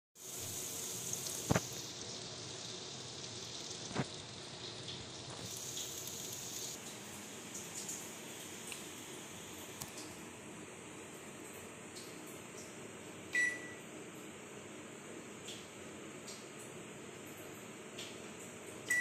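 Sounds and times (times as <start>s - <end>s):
chicken sizzling in hot oil: 0.2s - 7.5s
small crackles: 1.1s - 6.8s.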